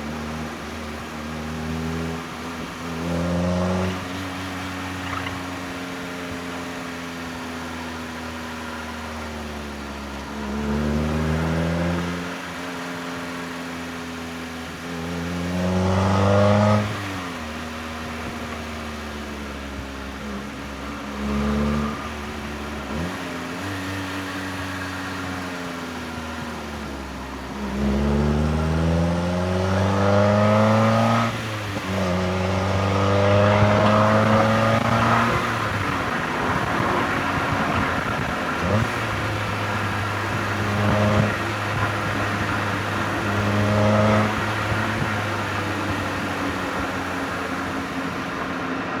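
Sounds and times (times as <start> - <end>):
car engine revving through gears: 10.4 - 14.0, 14.7 - 18.8, 20.2 - 49.0.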